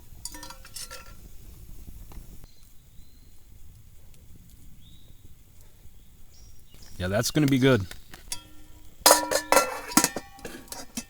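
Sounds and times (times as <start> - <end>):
metal clink on grill grate: 0.1 - 1.3, 7.4 - 11.0.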